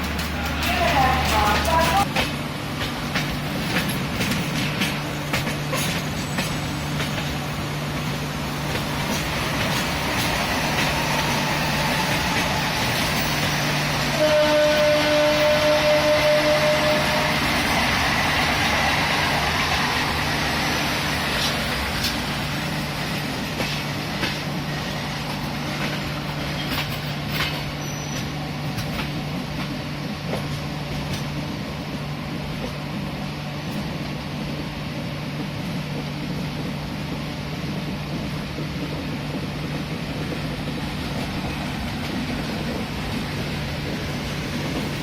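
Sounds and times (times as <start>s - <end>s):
train wheel clicks: 0.0s - 13.6s, 21.2s - 31.5s
train rumbling on rails: 0.0s - 45.0s
train horn: 14.1s - 17.8s.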